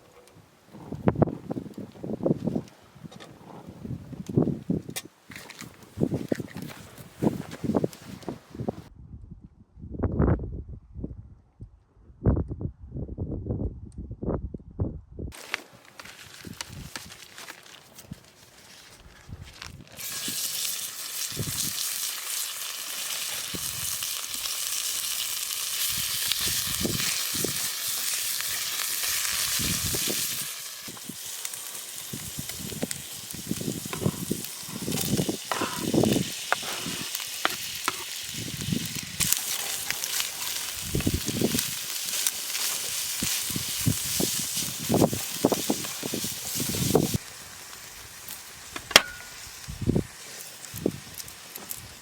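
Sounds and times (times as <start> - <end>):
food sizzling in a pan: 20.0 - 52.0
utensil knocking and scraping pan: 33.9 - 38.1.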